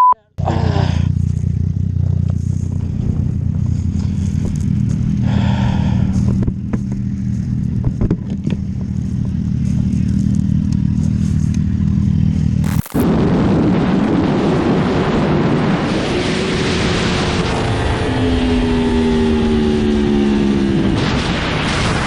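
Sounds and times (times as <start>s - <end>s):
motorcycle engine running: 0.4s - 22.0s
sharp clicks: 12.6s - 13.0s.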